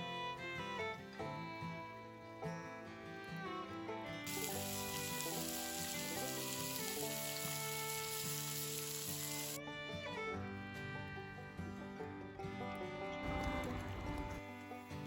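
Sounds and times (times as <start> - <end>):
background music: 0.0 - 15.0
food sizzling: 4.3 - 9.6.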